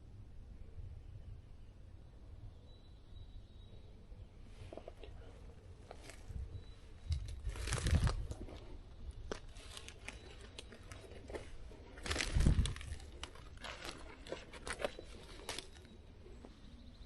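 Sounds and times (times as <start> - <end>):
close rustling and crackling: 4.5 - 16.6.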